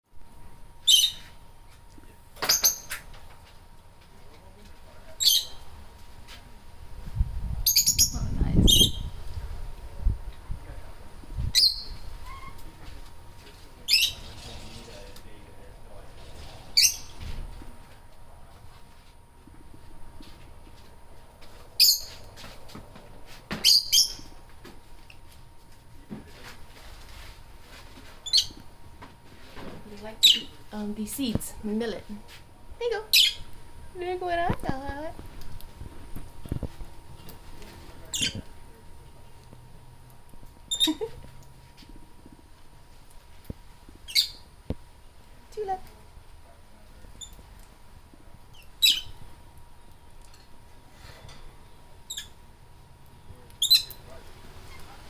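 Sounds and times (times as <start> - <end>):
faint steady hum: 0.1 - 55.0
lovebirds chirping shrilly: 0.8 - 1.3, 7.7 - 9.2, 11.6 - 12.6, 13.9 - 14.5, 16.8 - 17.2, 21.8 - 22.2, 23.6 - 24.4, 33.1 - 33.5, 53.6 - 54.0.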